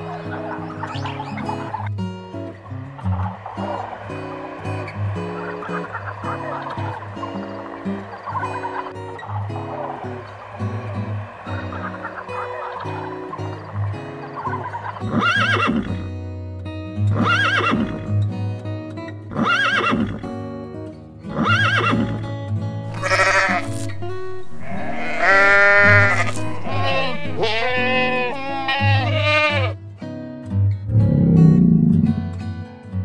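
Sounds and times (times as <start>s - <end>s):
background music: 0.0s - 33.0s
goat bleating: 22.9s - 29.8s.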